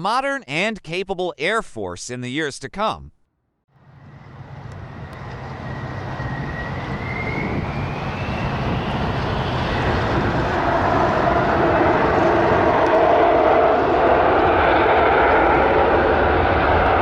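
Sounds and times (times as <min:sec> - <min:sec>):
jet aircraft engine roar: 0:03.7 - 0:17.0
thin whine rising in pitch: 0:03.7 - 0:17.0.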